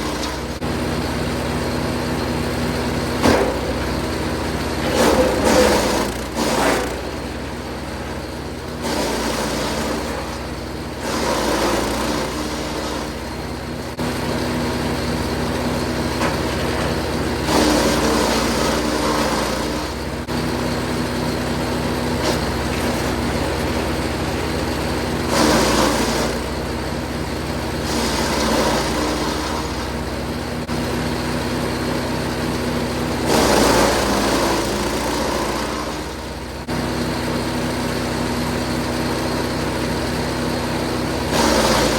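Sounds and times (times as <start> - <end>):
wood chipper engine running: 0.0 - 41.9
branches crunching and shredding: 16.2 - 19.8.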